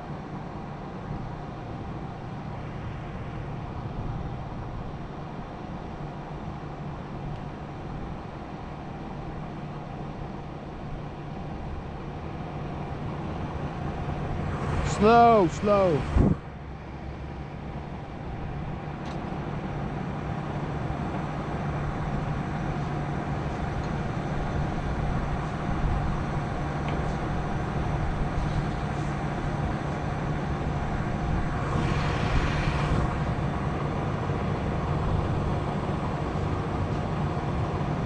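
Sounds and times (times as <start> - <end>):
crane engine droning: 0.0 - 38.0.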